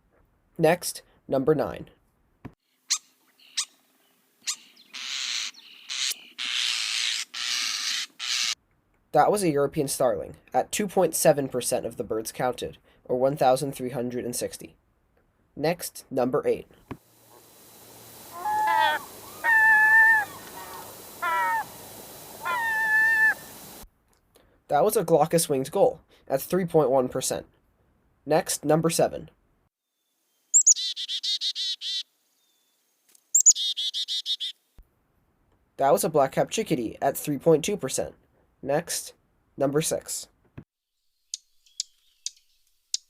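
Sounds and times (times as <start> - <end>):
starling chirping and rasping: 2.9 - 3.8, 4.4 - 8.6, 18.0 - 23.8, 30.5 - 32.0, 33.4 - 34.6, 41.3 - 43.0
faint gull calls: 18.3 - 21.8, 22.4 - 23.7
gull calling loudly: 18.3 - 23.7.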